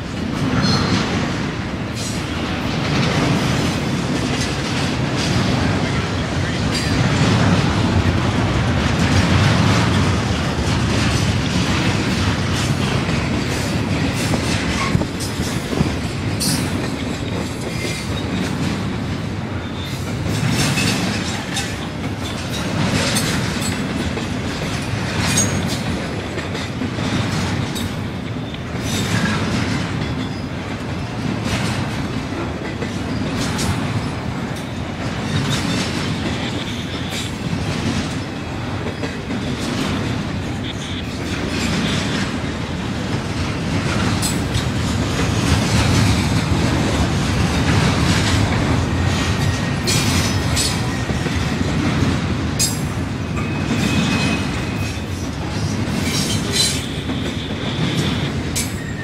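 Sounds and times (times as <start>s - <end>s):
steel wheels rumbling on rail: 0.0s - 59.0s
wheels clicking over rail joints: 0.0s - 59.0s
wheel squeal: 19.6s - 20.1s, 53.4s - 55.1s.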